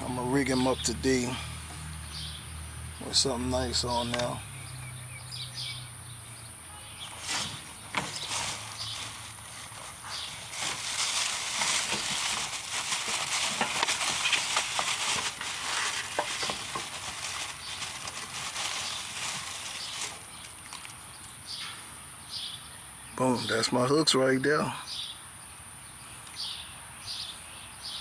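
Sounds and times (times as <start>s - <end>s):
fishing tackle rustling: 7.1s - 21.2s.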